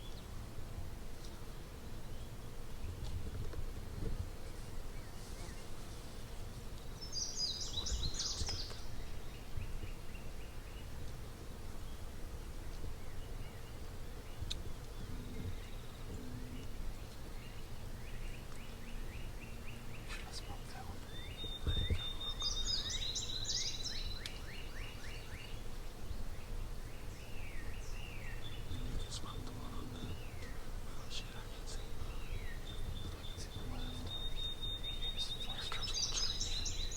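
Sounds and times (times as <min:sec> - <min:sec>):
small songbird singing: 0:06.7 - 0:11.2, 0:11.8 - 0:36.9.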